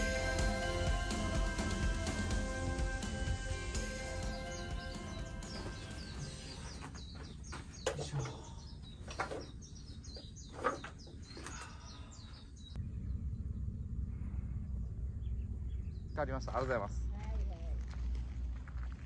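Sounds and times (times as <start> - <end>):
small birds chirping: 3.0 - 17.8.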